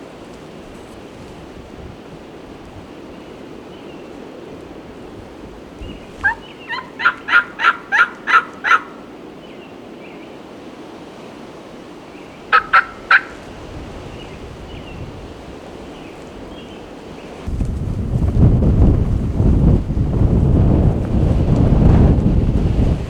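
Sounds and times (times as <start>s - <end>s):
wind rumble on microphone: 0.0s - 8.7s, 12.4s - 23.0s
turkey yelps: 6.1s - 9.1s, 12.5s - 13.6s.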